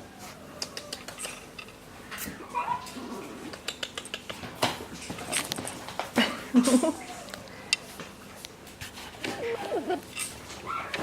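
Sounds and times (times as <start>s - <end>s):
puppies clicking and scuffing: 0.7s - 6.2s
puppy yips and whines: 10.6s - 11.0s.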